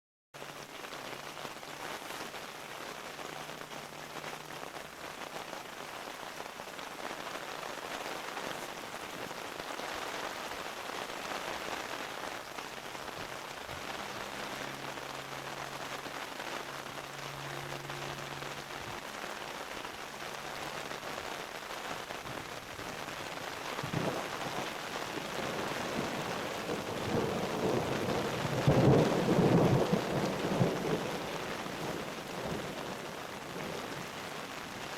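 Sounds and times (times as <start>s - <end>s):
steady rain falling: 0.4s - 34.9s
thunder rumbling: 21.9s - 34.9s.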